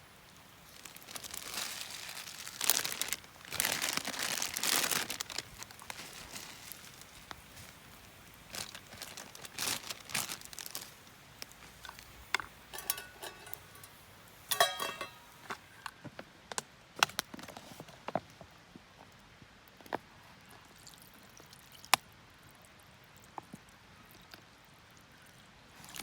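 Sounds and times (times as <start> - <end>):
crinkling rustles: 0.4 - 18.5
short ringing clink: 12.7 - 15.4.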